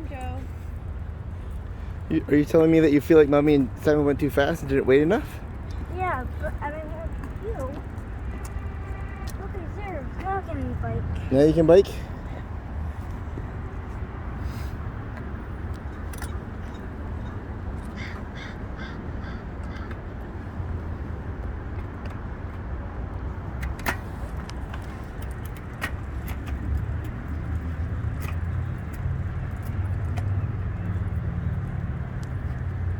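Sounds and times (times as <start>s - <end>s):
crow cawing: 18.0s - 20.0s.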